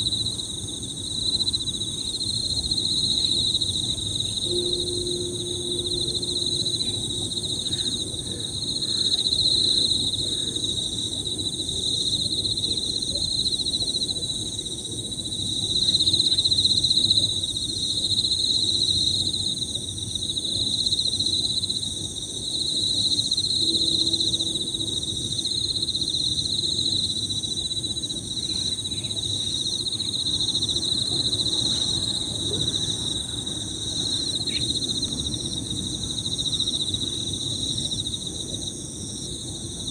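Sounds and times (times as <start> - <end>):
crickets chirping in trills: 0.0 - 39.9
low steady background haze: 2.5 - 13.2.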